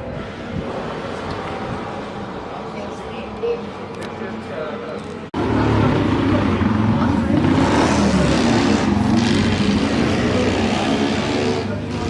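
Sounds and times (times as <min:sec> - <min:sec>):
racing motorcycle engine running: 0:05.4 - 0:12.0.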